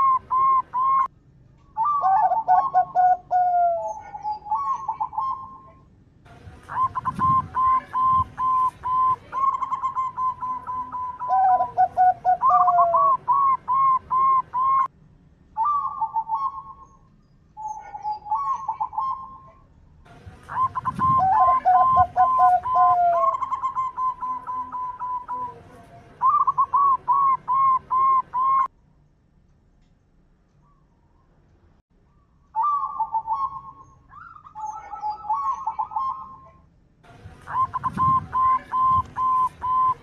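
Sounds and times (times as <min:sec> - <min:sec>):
doves cooing: 0:00.0 - 0:01.1, 0:01.8 - 0:05.8, 0:06.6 - 0:14.9, 0:17.6 - 0:19.6, 0:20.2 - 0:28.7, 0:32.6 - 0:36.6, 0:37.3 - 0:40.0.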